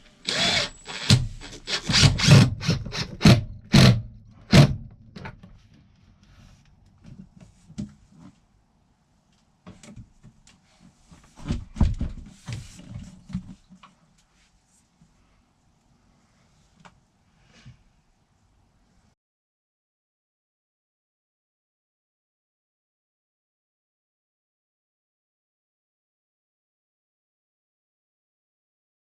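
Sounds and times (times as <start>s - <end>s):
irregular knocks and clatter: 11.1s - 13.9s.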